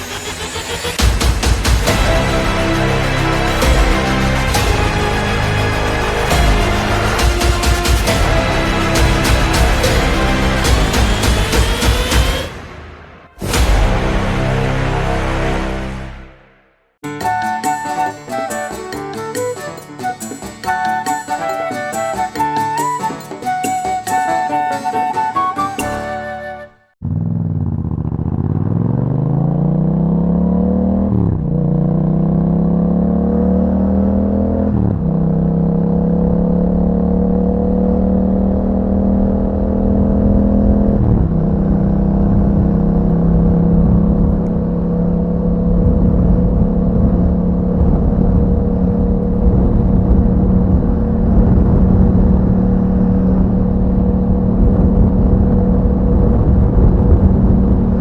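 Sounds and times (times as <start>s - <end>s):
motorcycle engine accelerating: 27.0s - 58.0s.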